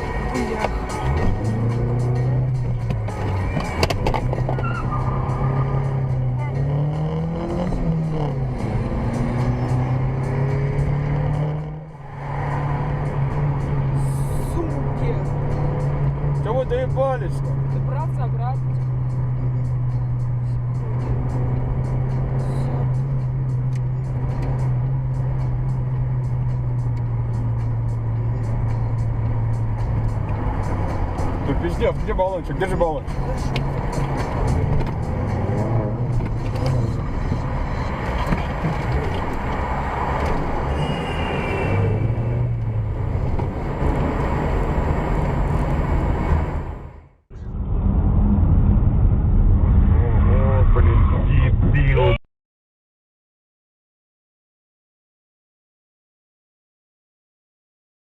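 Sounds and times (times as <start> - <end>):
vehicle engine drone: 0.0 - 52.2
muffled rumble: 42.6 - 52.2.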